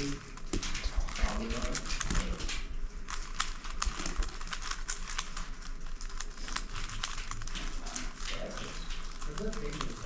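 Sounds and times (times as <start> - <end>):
plastic puzzle clicking and rattling: 0.0 - 10.0.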